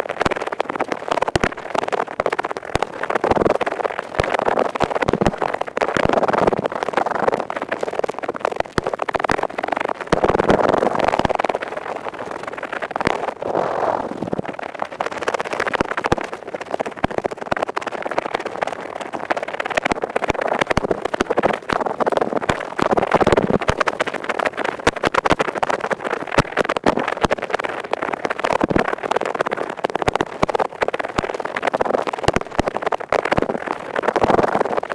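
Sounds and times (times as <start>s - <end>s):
earpick scraping microphone: 13.1s - 14.6s.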